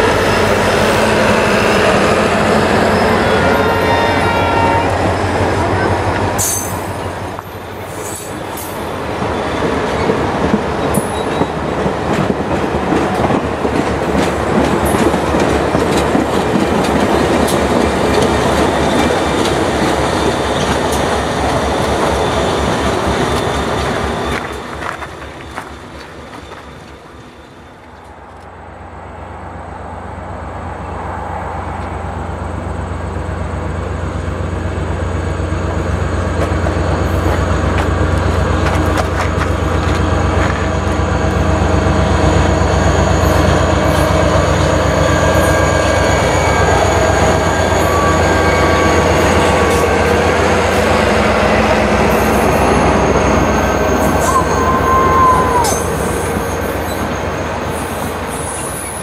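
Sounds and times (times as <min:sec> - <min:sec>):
diesel locomotive drone: 0:00.0 - 0:59.0
high wheel squeals: 0:01.4 - 0:07.0, 0:52.1 - 0:59.0
train wheels clicking over rail joints: 0:08.0 - 0:27.0, 0:35.7 - 0:42.5.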